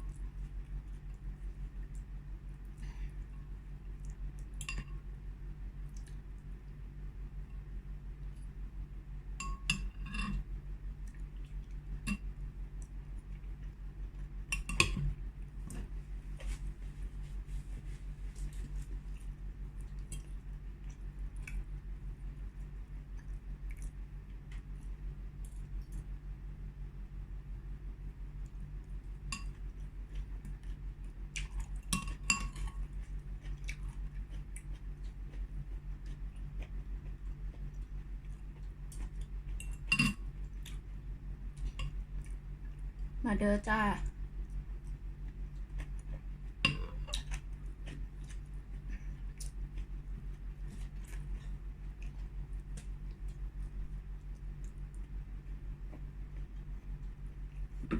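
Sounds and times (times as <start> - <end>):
steady low hum: 0.0 - 57.9
utensils clinking on a bowl: 9.4 - 10.4.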